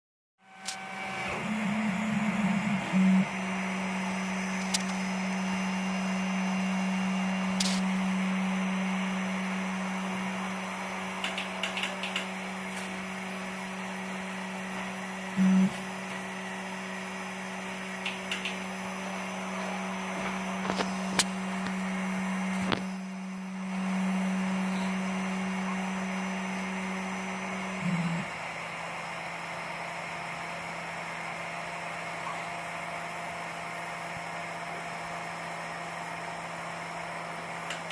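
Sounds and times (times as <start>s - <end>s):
stepper motors humming: 0.4s - 29.5s.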